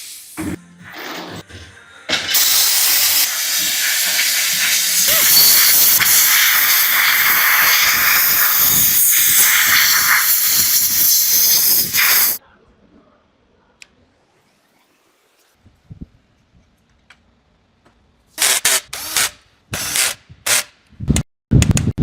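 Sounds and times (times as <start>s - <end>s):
pressurised gas jet hissing: 2.2s - 12.4s.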